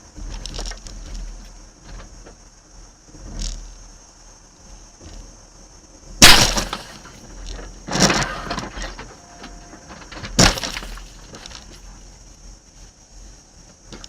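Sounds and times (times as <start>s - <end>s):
car crash impacts: 6.2s - 7.3s, 7.9s - 11.6s
rattling debris: 6.2s - 12.0s.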